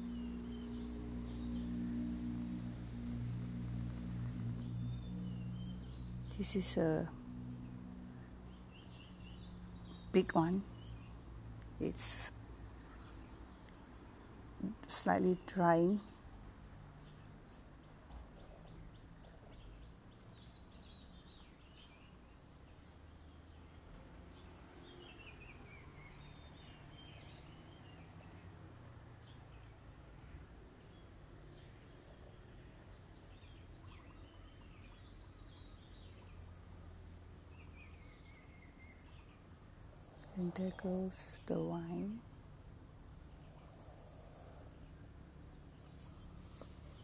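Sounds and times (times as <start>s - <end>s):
birds chirping: 0.0s - 13.8s, 29.2s - 47.0s
low outdoor hum: 0.0s - 47.0s.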